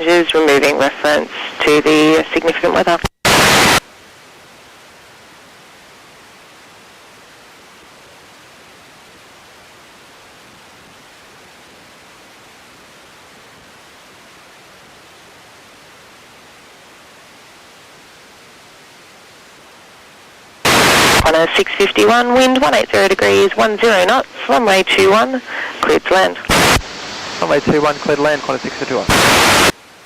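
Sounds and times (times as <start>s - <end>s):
radio static hiss: 0.0s - 4.0s, 20.6s - 30.0s.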